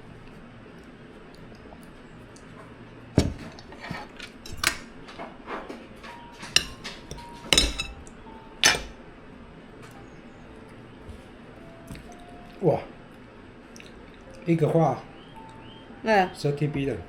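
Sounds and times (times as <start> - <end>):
cutlery clinking on plates: 3.5 - 4.8, 5.6 - 8.9.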